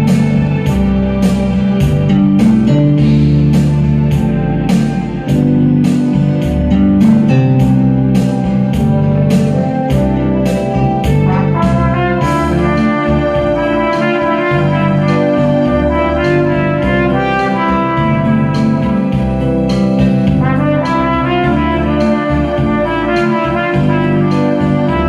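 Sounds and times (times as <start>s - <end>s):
backing track with steady beat: 0.0s - 25.0s
trumpet playing long held notes: 11.3s - 19.5s, 20.4s - 25.0s.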